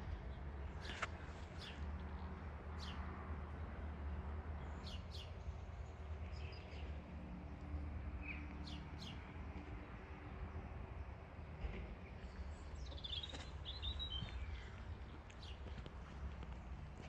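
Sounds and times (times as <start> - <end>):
small birds chirping: 0.3 - 3.1, 4.6 - 7.1, 8.1 - 9.8, 12.0 - 16.5.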